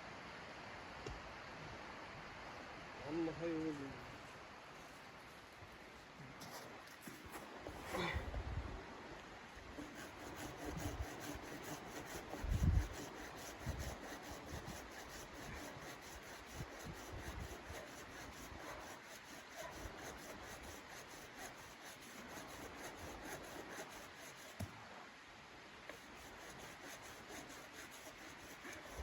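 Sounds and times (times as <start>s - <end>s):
rubbing and scraping: 9.7s - 24.7s, 25.9s - 29.0s.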